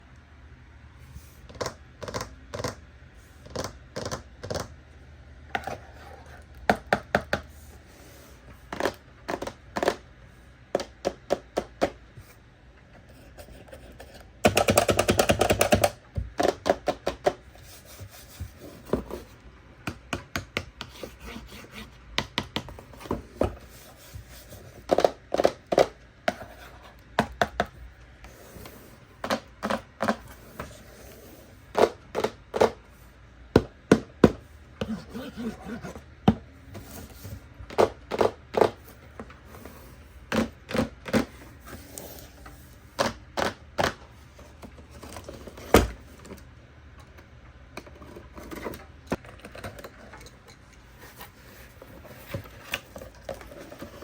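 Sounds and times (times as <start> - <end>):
packaging clicks and taps: 13.5 - 17.4.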